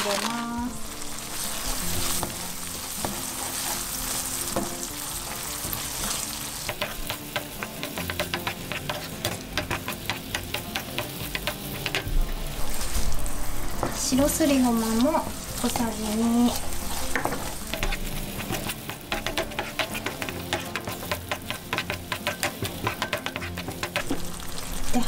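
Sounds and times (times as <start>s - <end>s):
food sizzling in a frying pan: 0.0s - 25.0s
wooden spatula tapping a pan: 4.5s - 4.9s, 5.7s - 12.3s, 16.5s - 24.3s.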